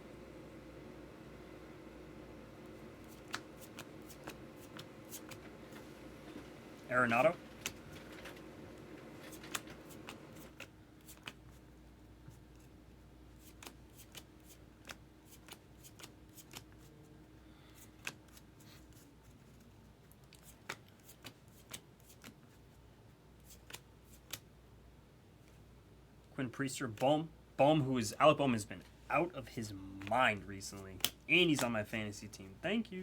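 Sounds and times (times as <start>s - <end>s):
cards being flipped: 3.0s - 5.5s, 7.6s - 8.4s, 9.2s - 11.6s, 13.4s - 16.9s, 17.8s - 22.5s, 23.4s - 24.5s, 30.0s - 31.8s.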